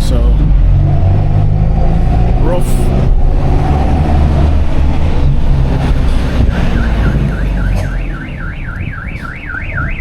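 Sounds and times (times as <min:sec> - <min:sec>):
low vehicle engine rumble: 0:00.0 - 0:10.0
electronic warbling alarm: 0:06.5 - 0:10.0.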